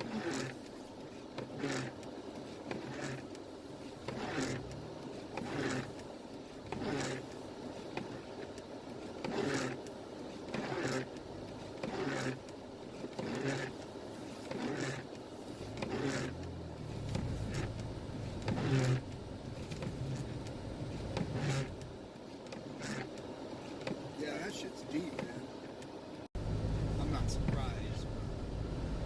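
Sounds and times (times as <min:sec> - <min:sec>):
windshield wipers swishing: 0:00.0 - 0:29.0
vehicle running hum: 0:14.8 - 0:22.0, 0:24.8 - 0:29.0.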